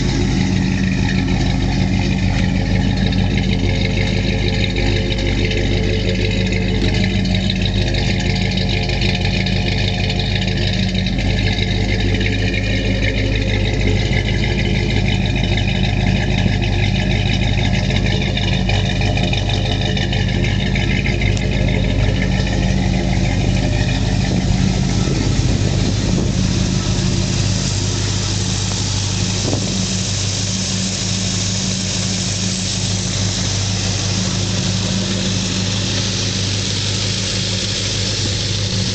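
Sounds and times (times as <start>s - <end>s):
car engine hum: 0.0s - 38.9s
road and wind rush: 22.8s - 38.9s.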